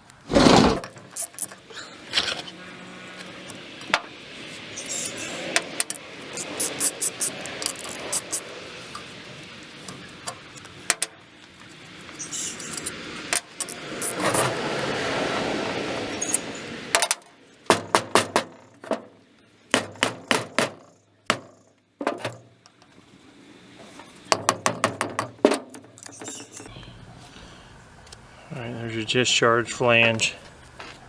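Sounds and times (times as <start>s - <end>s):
rough scraping: 0.5s - 26.7s
metal tools clinking: 0.8s - 15.0s, 16.0s - 23.0s, 23.7s - 26.7s.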